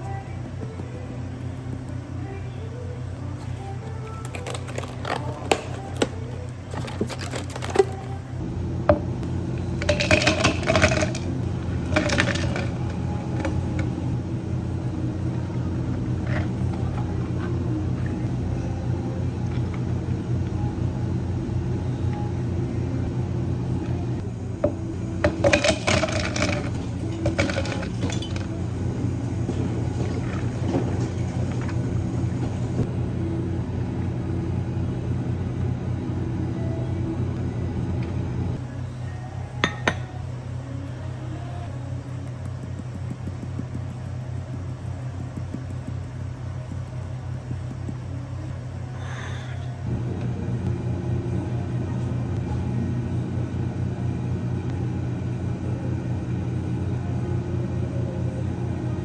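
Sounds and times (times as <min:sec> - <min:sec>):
low machine hum: 0:00.0 - 0:59.0
glassware and utensils clinking: 0:09.8 - 0:13.9, 0:25.2 - 0:32.8, 0:39.6 - 0:40.2.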